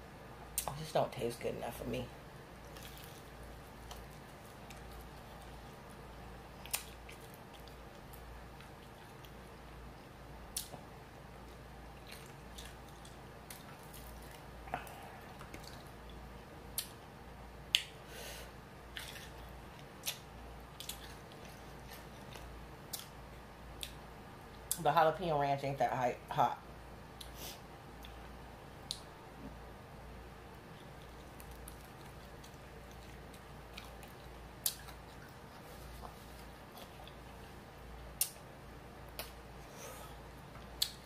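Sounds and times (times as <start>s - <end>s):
faint low hum: 0.0s - 41.0s
wet chewing and smacking: 2.6s - 9.8s, 10.5s - 17.1s, 18.8s - 24.8s, 30.5s - 39.4s, 40.4s - 41.0s
sharp mouth clicks: 40.8s - 41.0s.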